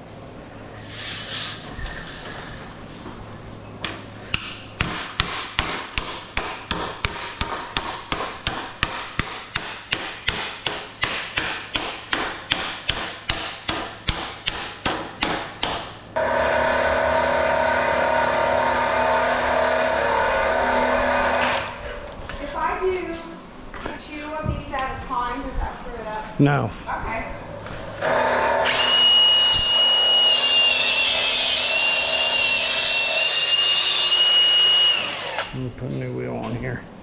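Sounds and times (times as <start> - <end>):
hammering: 3.8 - 21.8
power tool motor running: 16.2 - 21.8, 28.0 - 35.6.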